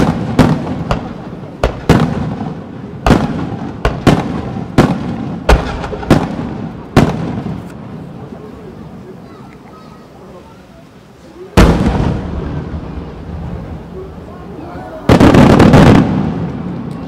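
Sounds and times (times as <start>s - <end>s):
firework shells bursting: 0.0s - 7.8s.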